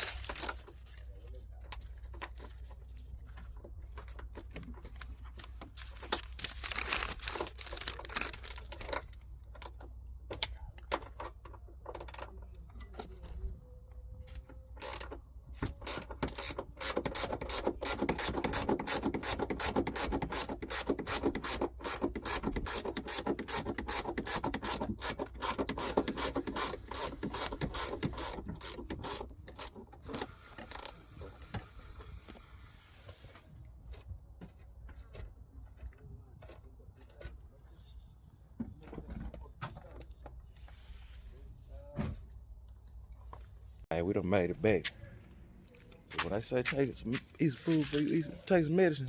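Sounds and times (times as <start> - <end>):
low steady hum: 0.0 - 16.0
hand ratchet clicking: 14.8 - 15.1, 15.8 - 31.0.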